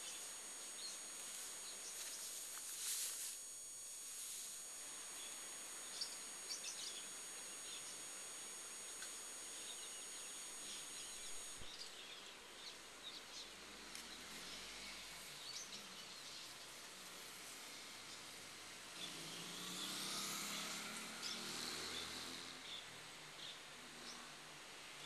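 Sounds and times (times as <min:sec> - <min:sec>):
steady high tones: 0:00.0 - 0:11.7
faint outdoor background noise: 0:00.0 - 0:25.0.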